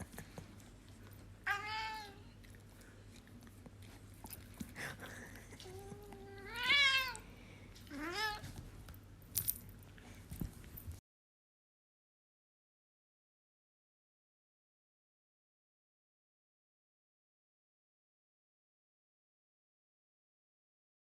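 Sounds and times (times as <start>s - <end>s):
cat meowing: 1.4s - 2.3s, 6.2s - 7.2s, 7.9s - 8.5s.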